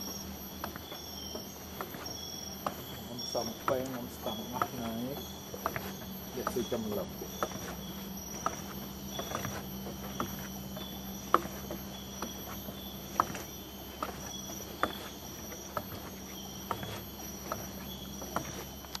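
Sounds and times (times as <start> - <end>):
insects calling high-pitched: 0.0 - 19.0
low steady hum: 0.0 - 19.0.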